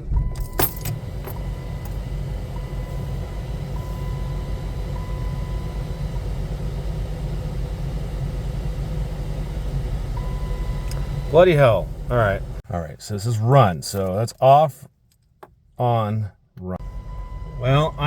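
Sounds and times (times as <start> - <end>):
car engine idling: 0.0 - 12.6, 16.6 - 18.0.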